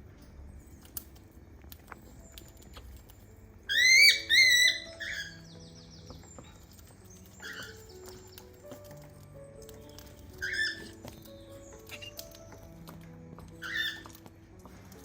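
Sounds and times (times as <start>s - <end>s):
faint background music: 0.0s - 15.0s
cockatiel chirping: 3.7s - 8.5s, 10.0s - 12.6s, 13.6s - 14.2s.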